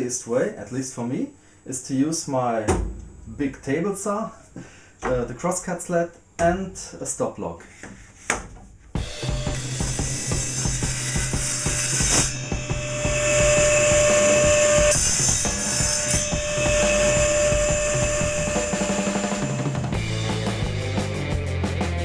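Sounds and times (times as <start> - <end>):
background music with beat: 9.0 - 15.0, 16.4 - 22.0
table saw cutting pipe: 9.3 - 20.0.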